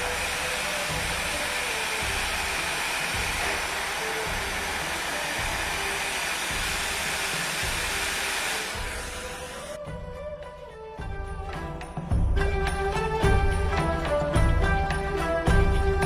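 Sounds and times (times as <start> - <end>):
background music with a beat: 0.0 - 8.2, 8.8 - 16.0
hot-air gun blowing: 0.0 - 9.8.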